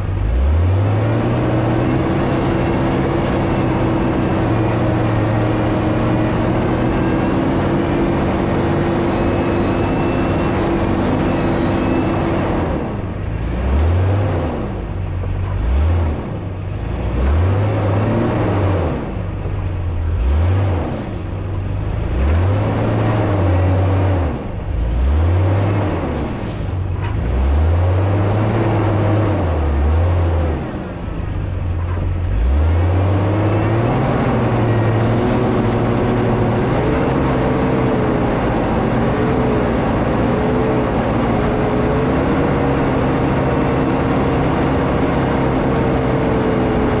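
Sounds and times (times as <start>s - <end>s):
vehicle engine revving: 0.0s - 47.0s.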